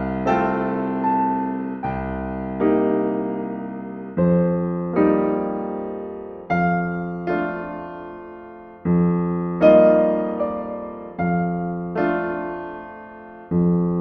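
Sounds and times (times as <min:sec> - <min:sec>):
slow gentle piano chords: 0:00.0 - 0:14.0.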